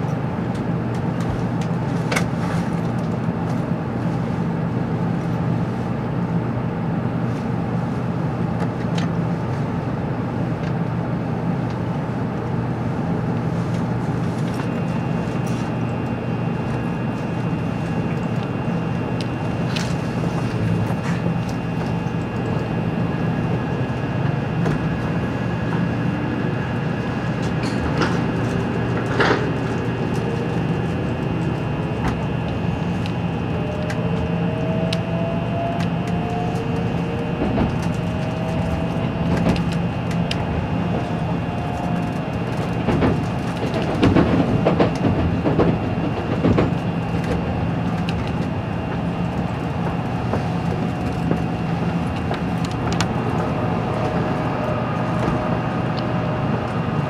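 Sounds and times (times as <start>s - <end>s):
train rumble and hum: 0.0s - 57.0s
traction motor whine: 14.7s - 57.0s.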